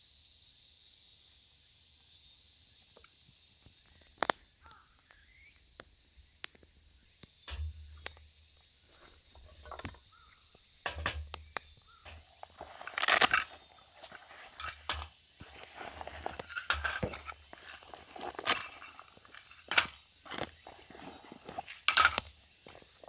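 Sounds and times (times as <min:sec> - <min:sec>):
insects trilling: 0:00.0 - 0:23.0
sharp clicks and knocks: 0:07.2 - 0:08.3, 0:09.4 - 0:10.0, 0:10.8 - 0:22.8
rustling clatter: 0:12.1 - 0:23.0.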